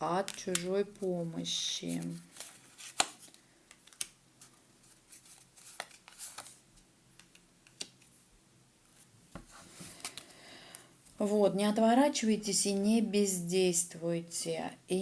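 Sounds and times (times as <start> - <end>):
cards clicking and tapping: 2.4 - 4.2.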